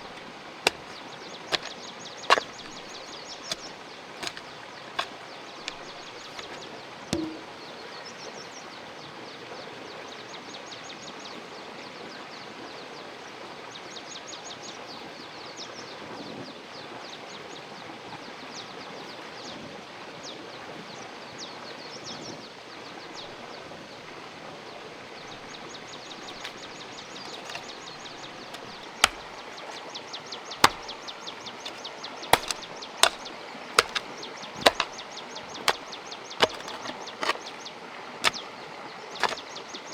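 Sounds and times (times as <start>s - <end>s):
sharp knocks: 0.0s - 1.7s, 2.3s - 3.6s, 4.2s - 4.4s, 7.2s - 7.5s, 27.3s - 27.6s, 28.6s - 29.2s, 30.6s - 30.9s, 32.4s - 33.2s, 33.8s - 34.0s, 34.6s - 34.9s, 36.4s - 37.6s.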